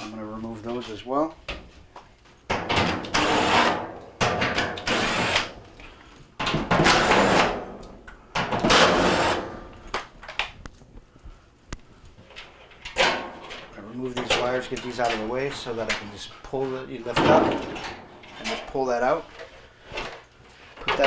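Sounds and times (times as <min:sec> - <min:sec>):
power drill spurts: 0:03.1 - 0:03.8, 0:04.8 - 0:05.6, 0:06.8 - 0:07.6, 0:08.6 - 0:09.6.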